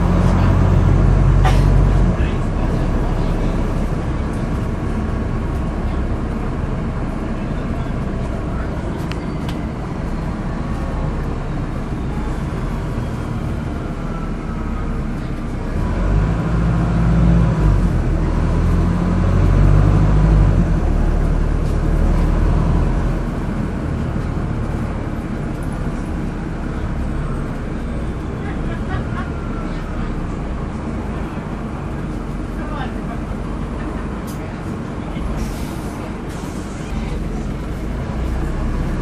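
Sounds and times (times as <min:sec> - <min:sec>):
bus diesel engine running: 0:00.0 - 0:39.0.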